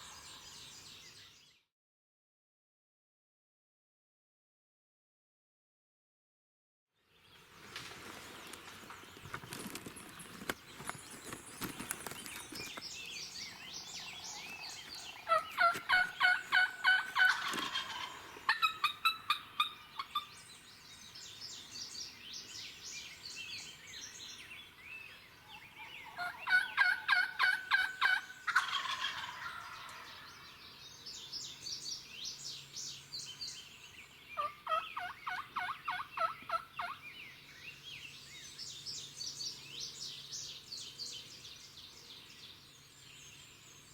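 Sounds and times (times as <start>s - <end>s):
songbirds chirping: 0.0s - 1.7s, 7.0s - 43.9s
turkey gobbling: 15.1s - 20.3s, 26.0s - 30.3s, 34.4s - 37.0s.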